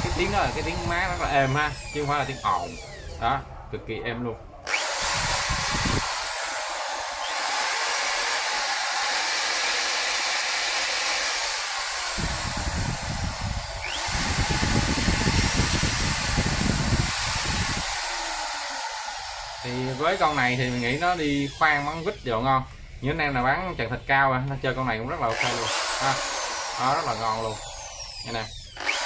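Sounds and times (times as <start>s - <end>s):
electric drill running: 0.0s - 3.3s, 4.7s - 22.3s, 25.3s - 29.0s.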